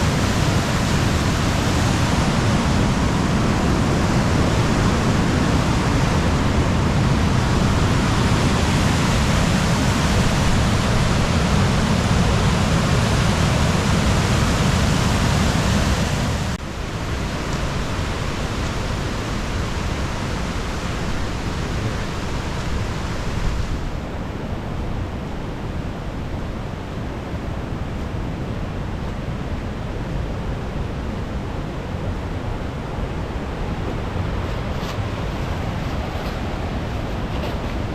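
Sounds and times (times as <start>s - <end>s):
waterfall rushing: 0.0s - 23.9s.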